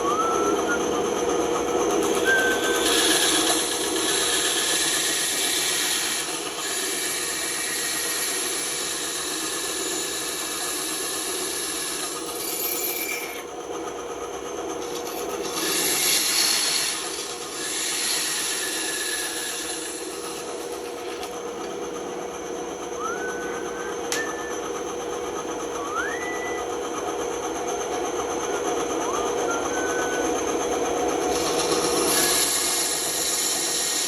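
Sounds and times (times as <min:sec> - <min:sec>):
band saw motor hum: 0:00.0 - 0:34.0
saw blade hissing through wood: 0:15.4 - 0:20.6, 0:31.3 - 0:34.0.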